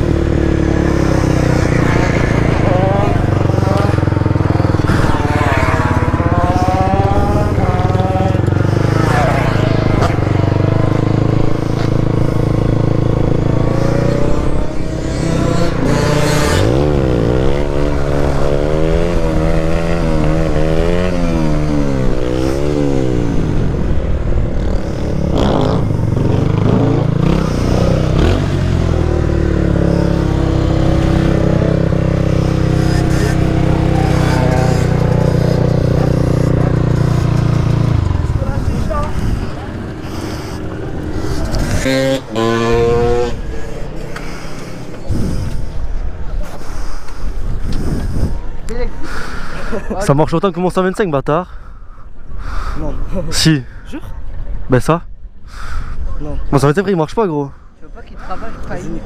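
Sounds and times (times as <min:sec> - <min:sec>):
motorcycle engines revving: 0:00.0 - 0:51.3, 0:56.1 - 0:59.0.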